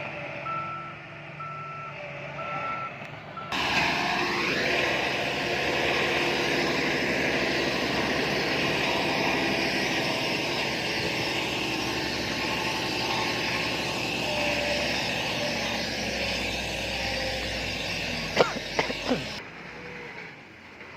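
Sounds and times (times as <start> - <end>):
diesel machinery engine drone: 0.0 - 20.9.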